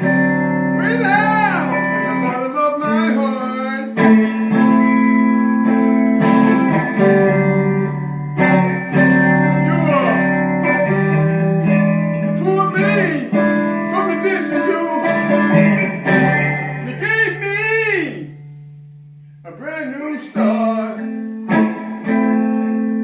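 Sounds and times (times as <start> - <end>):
guitar chords: 0.0 - 23.0
person singing: 0.8 - 4.0, 9.5 - 10.3, 12.4 - 15.4, 16.8 - 18.3, 19.5 - 21.1.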